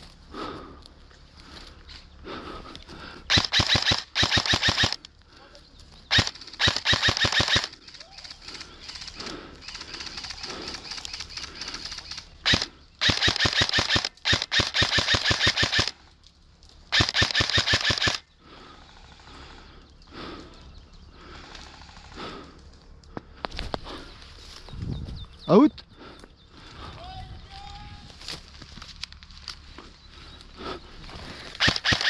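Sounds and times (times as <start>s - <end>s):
airsoft rifle bursts: 3.3s - 5.1s, 6.1s - 16.0s, 16.9s - 18.3s, 31.5s - 32.0s.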